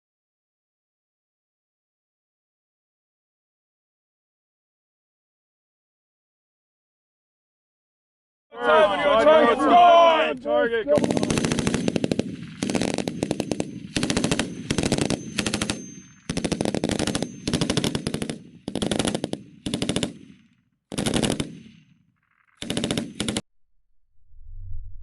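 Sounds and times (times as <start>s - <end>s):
machine gun bursts: 10.9s - 23.4s.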